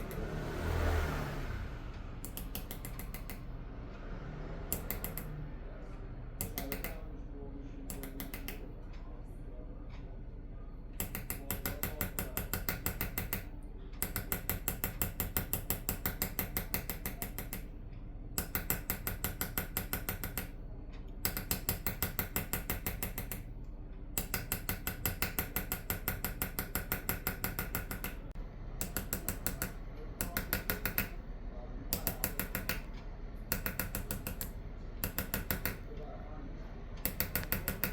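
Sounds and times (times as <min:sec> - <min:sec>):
hammer tapping engraving chisel: 0:02.2 - 0:03.4, 0:04.7 - 0:05.3, 0:06.4 - 0:07.0, 0:07.9 - 0:08.7, 0:11.0 - 0:17.7, 0:18.4 - 0:20.6, 0:21.2 - 0:23.5, 0:24.2 - 0:31.2, 0:31.9 - 0:35.9, 0:37.0 - 0:37.9.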